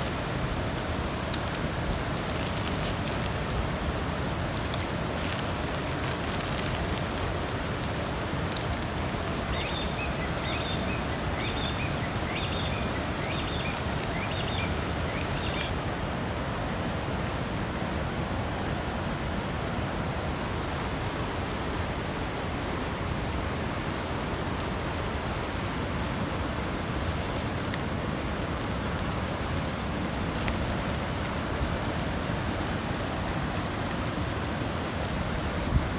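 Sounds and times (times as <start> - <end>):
steady rushing background noise: 0.0 - 10.6
campfire crackling and snapping: 0.0 - 11.8, 12.4 - 15.8, 24.4 - 35.9.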